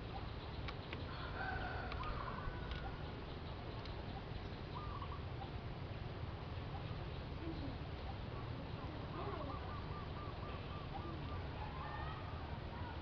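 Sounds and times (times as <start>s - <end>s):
steady low rumble: 0.0s - 13.0s
long bird call: 1.0s - 5.6s, 6.6s - 13.0s
faint clicks: 1.8s - 2.9s.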